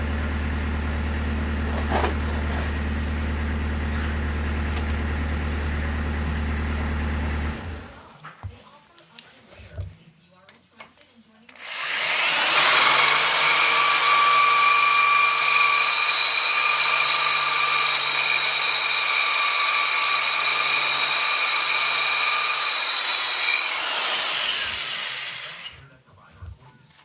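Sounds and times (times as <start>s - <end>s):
power tool whining: 11.6s - 25.8s.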